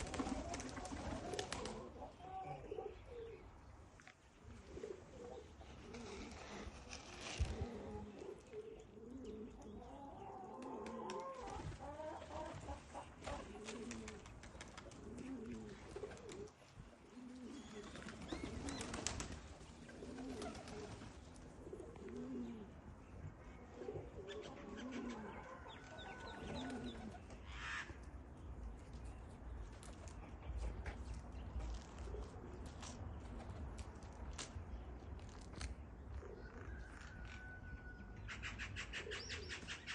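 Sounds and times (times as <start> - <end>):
pigeons cooing: 0.0 - 3.6, 4.4 - 28.0, 36.0 - 37.6, 38.2 - 39.9.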